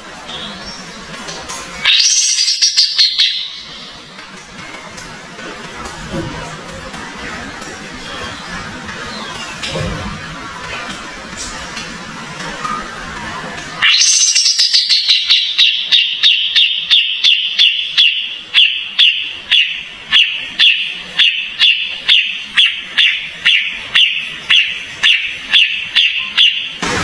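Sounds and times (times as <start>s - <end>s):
songbird sharp high chirps: 1.9s - 4.0s, 13.8s - 26.8s.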